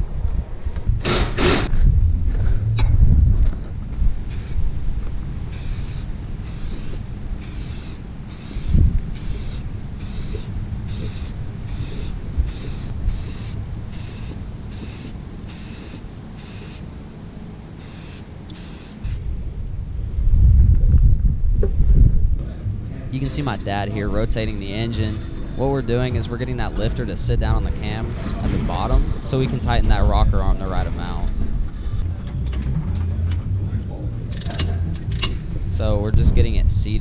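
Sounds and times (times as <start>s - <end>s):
steady low rumble: 0.0s - 37.0s
short hissing strokes: 4.3s - 4.7s, 5.5s - 16.9s, 17.8s - 19.2s.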